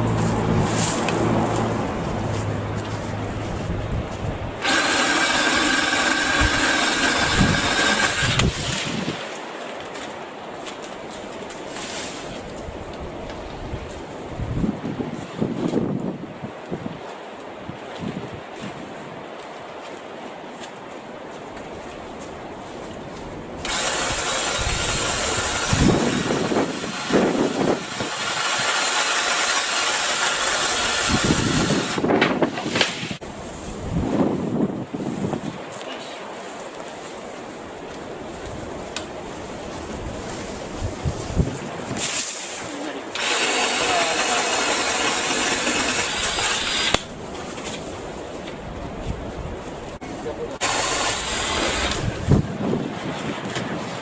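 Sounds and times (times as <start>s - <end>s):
cordless saw motor running: 4.6s - 9.0s, 23.6s - 32.0s, 43.1s - 47.1s, 50.6s - 52.3s.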